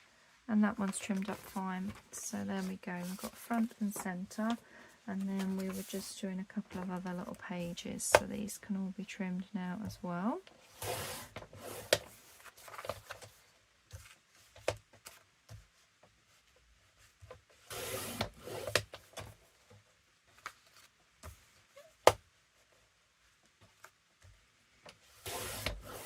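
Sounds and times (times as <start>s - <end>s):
paper rustling and sliding: 0.9s - 4.6s, 5.2s - 6.2s, 20.3s - 21.5s, 25.0s - 26.0s
paper trimmer rasping: 17.7s - 18.8s, 25.2s - 26.0s.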